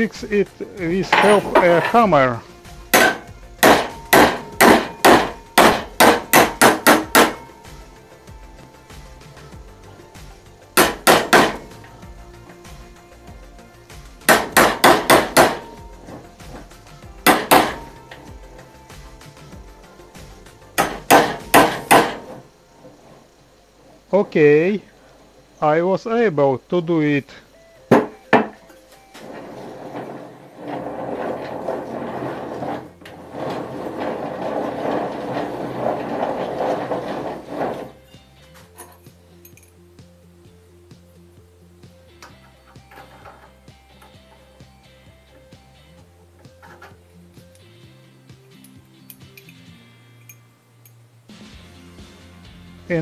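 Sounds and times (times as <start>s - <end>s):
hammer blows on steel: 2.9s - 7.9s, 10.8s - 11.9s, 14.2s - 16.6s, 17.2s - 18.4s.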